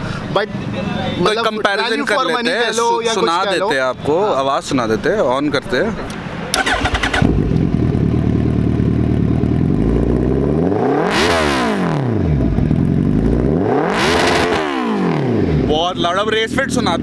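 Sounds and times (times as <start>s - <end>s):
motorcycle engine starting and revving: 6.5s - 17.0s.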